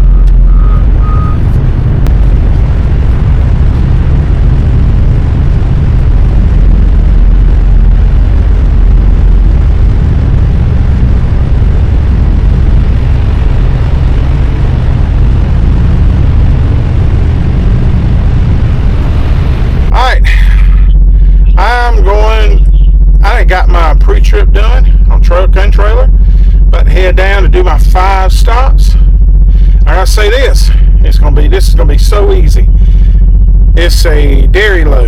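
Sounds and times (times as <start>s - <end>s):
high beeps: 0.0s - 1.6s, 20.7s - 23.2s
diesel truck engine running: 0.0s - 35.0s.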